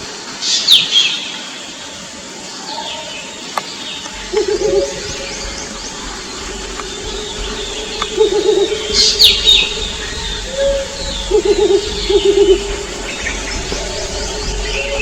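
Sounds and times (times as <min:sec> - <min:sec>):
owls hooting: 0:04.0 - 0:15.0.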